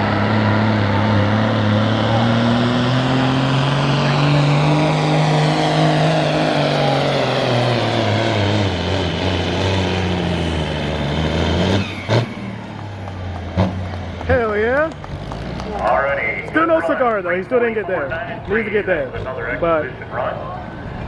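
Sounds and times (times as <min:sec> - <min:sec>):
diesel truck engine under load: 0:00.0 - 0:21.0.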